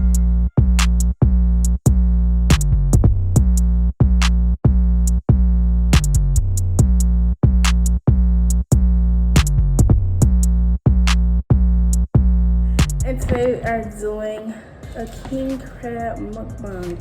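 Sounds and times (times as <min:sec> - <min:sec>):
electronic music with drum-machine beat: 0:00.0 - 0:03.6, 0:14.8 - 0:17.0.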